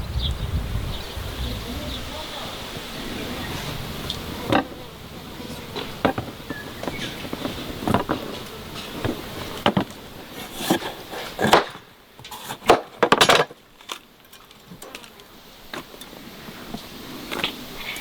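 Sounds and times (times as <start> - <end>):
knocks and clatters: 4.0 - 16.1.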